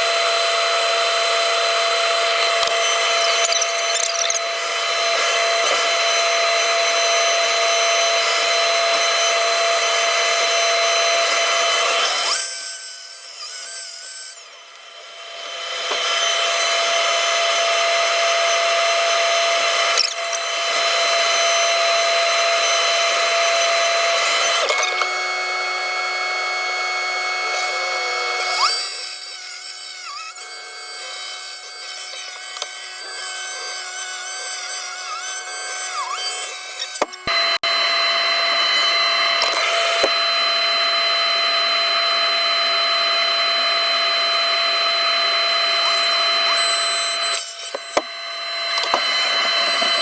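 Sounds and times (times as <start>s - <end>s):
excavator hydraulic whine: 35.2s - 50.0s.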